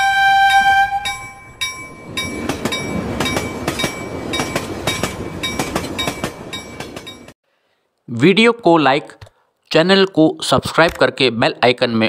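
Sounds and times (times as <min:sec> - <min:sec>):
train passing rumble: 0:00.0 - 0:07.4
chime note: 0:00.5 - 0:04.7
wheels clacking over rail joints: 0:01.1 - 0:07.4.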